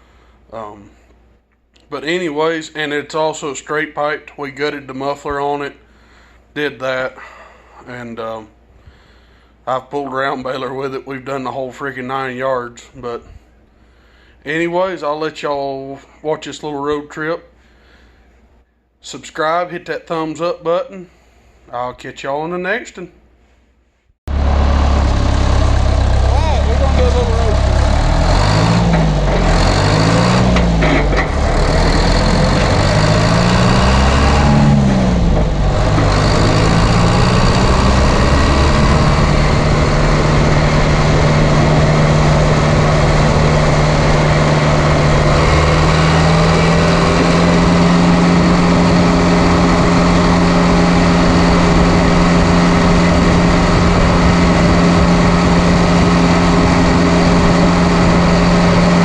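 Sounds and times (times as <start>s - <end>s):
diesel tractor engine running: 24.3s - 59.0s.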